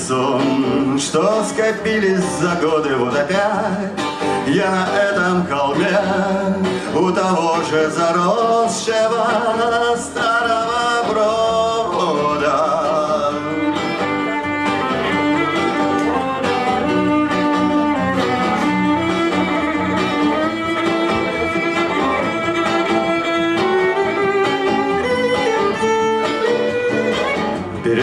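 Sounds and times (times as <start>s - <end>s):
guitar accompaniment: 0.0s - 28.0s
violin melody: 8.2s - 28.0s.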